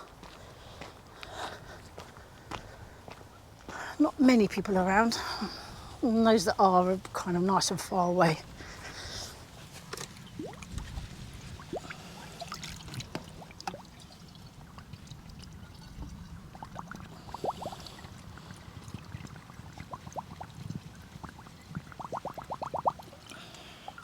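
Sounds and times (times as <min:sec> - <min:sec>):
bubbly glugs: 0:10.3 - 0:10.8, 0:11.6 - 0:24.0.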